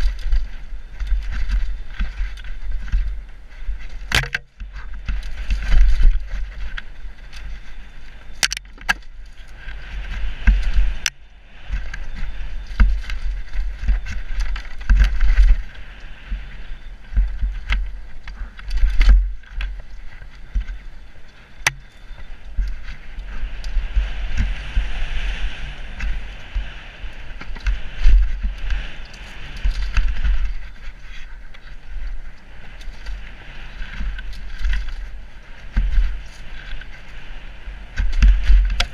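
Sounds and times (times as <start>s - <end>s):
wind buffeting microphone: 0.0s - 38.9s
bike chain and frame knocks: 4.0s - 6.4s.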